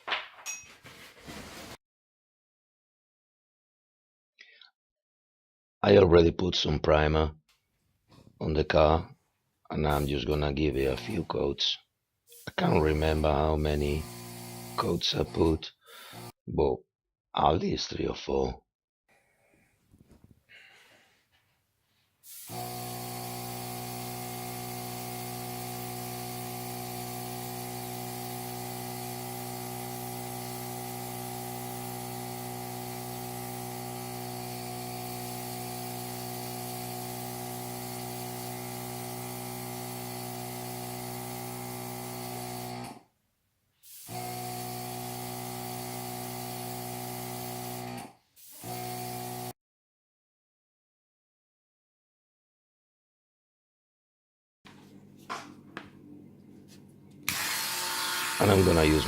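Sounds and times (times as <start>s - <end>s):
airbrush compressor humming: 9.9s - 11.3s, 12.3s - 15.5s, 16.1s - 16.3s, 22.3s - 43.0s, 43.9s - 49.5s, 57.2s - 59.0s
hiss of air spraying paint: 22.2s - 22.7s, 25.2s - 32.2s, 34.1s - 39.1s, 39.8s - 41.1s, 43.8s - 44.3s, 47.4s - 47.8s, 48.4s - 48.8s.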